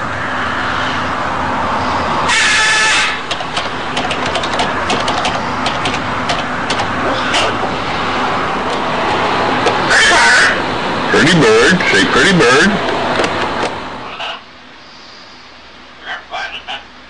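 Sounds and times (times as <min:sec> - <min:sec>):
steady background noise: 0:00.0 - 0:17.0
sharp clicks: 0:03.2 - 0:07.4.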